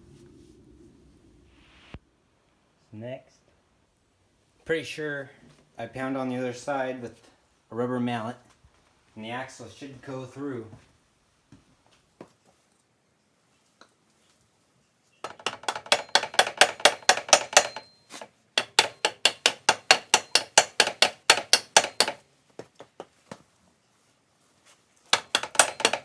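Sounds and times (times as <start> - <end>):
rubber mallet striking steel axle: 15.2 - 22.2, 25.2 - 26.0.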